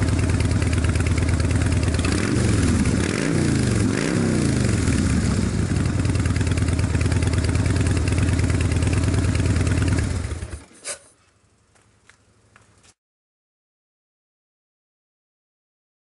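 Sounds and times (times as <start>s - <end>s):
motorcycle engine idling: 0.0s - 10.7s.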